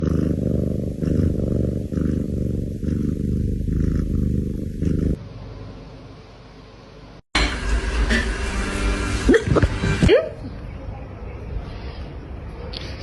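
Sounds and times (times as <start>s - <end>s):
cat purring: 0.0s - 5.2s.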